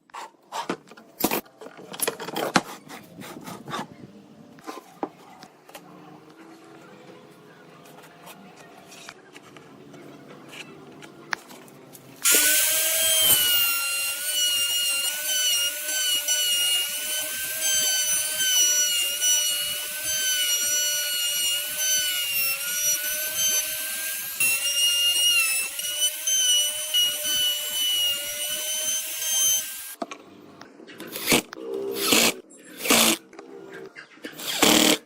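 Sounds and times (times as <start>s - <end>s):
electric power tool on wood: 12.2s - 30.0s, 34.4s - 35.0s.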